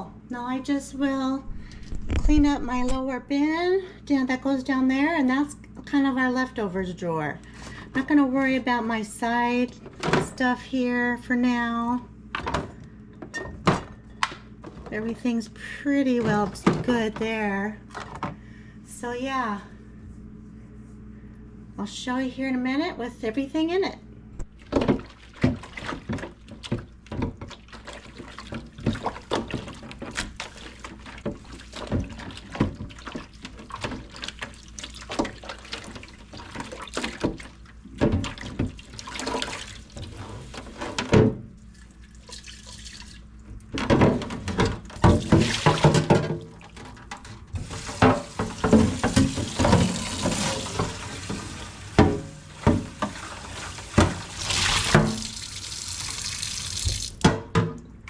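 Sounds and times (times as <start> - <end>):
containers clattering and knocking: 16.1 - 18.4, 24.6 - 41.4, 43.6 - 55.3.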